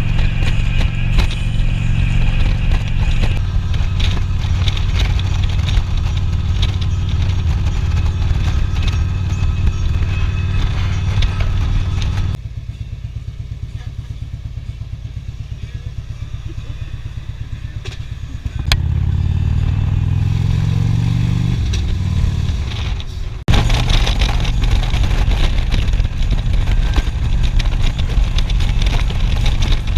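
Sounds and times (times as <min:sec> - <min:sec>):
motorcycle engine revving: 0:00.0 - 0:29.9
wind noise: 0:20.0 - 0:29.9.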